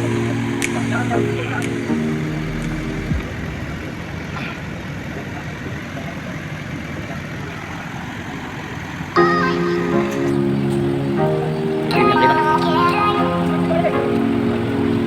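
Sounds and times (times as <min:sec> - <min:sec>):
background music: 0:00.0 - 0:03.8, 0:09.2 - 0:15.0.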